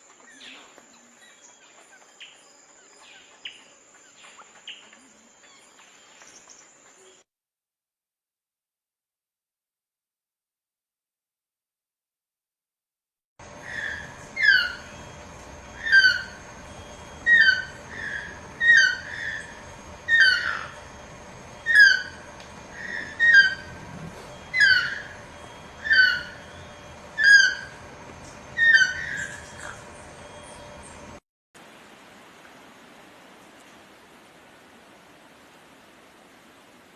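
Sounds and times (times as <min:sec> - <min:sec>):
bird calling: 0:13.4 - 0:31.2
faint steady hum: 0:13.4 - 0:36.9.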